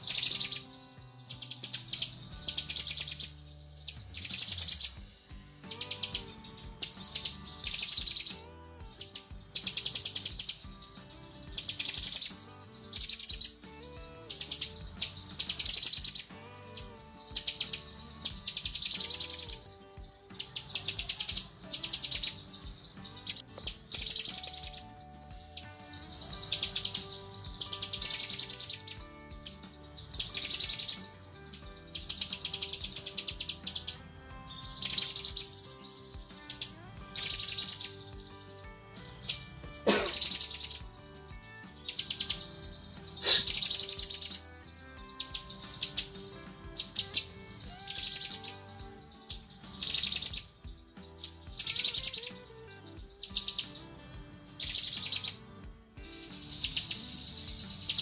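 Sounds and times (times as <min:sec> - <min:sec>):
bird chattering call: 0:39.2 - 0:53.9.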